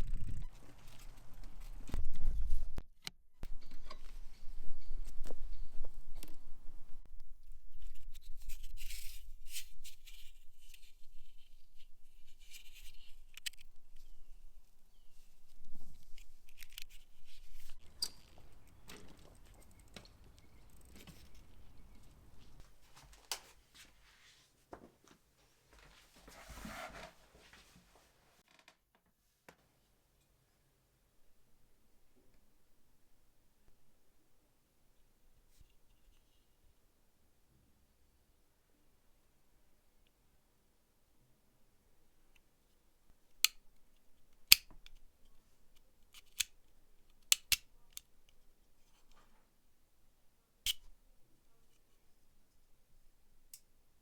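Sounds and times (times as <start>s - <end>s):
scraping rustle: 25.9s - 28.0s
sharp clicks and snaps of tools: 43.4s - 43.6s, 44.4s - 45.0s, 46.1s - 48.1s.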